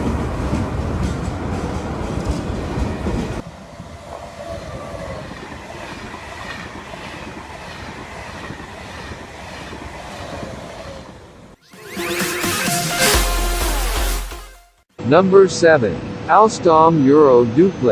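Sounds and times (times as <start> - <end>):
high-speed train running on track: 0.0 - 11.6.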